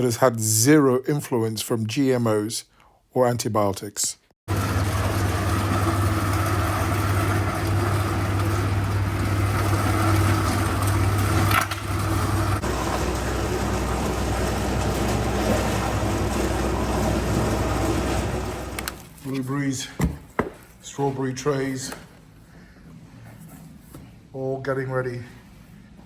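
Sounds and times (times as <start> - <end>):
meat mincer motor hum: 4.5 - 19.0.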